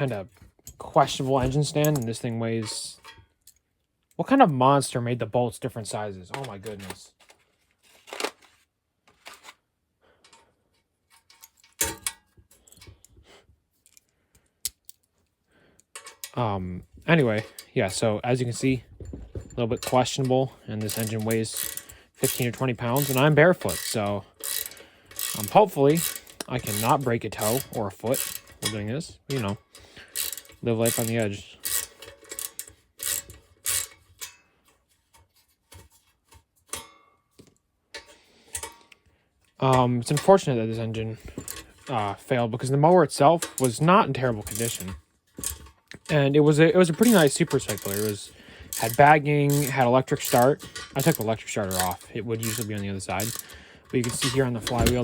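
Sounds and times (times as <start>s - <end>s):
heavy metal clunk: 18.8s - 20.0s, 54.2s - 55.0s
socket ratchet clicking: 20.9s - 28.6s, 47.0s - 48.1s, 48.7s - 55.0s.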